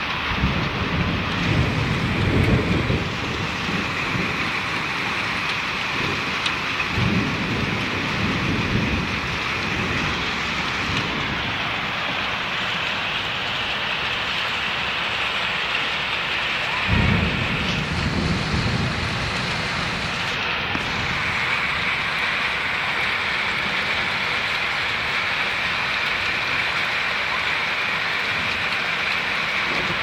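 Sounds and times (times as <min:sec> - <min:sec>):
heavy rain: 0:00.0 - 0:30.0
deep rumbles: 0:00.2 - 0:14.6, 0:16.7 - 0:22.6.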